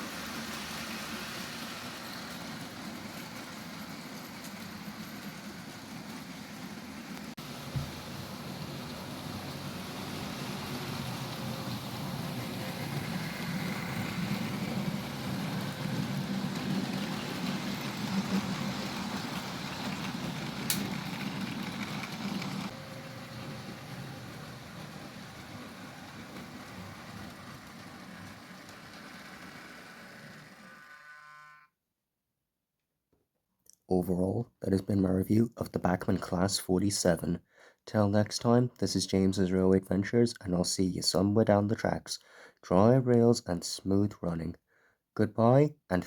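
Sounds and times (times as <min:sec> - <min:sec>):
model train motor whirring: 0:09.0 - 0:31.7.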